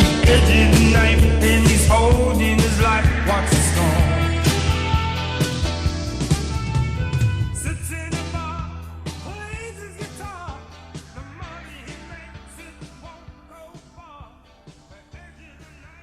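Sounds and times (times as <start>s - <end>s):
rock band final chord ringing: 0.0s - 6.6s
wavering high notes: 0.0s - 6.7s.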